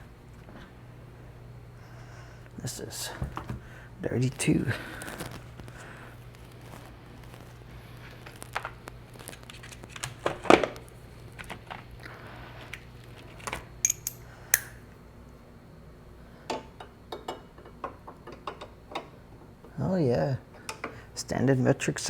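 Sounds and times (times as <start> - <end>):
steady low hum: 0.0 - 17.0
small metal pieces clinking: 13.8 - 14.2.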